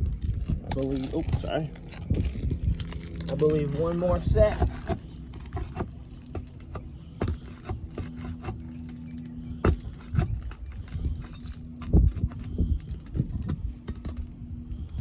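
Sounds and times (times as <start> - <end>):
metal tools scraping shingles: 3.2 - 14.8.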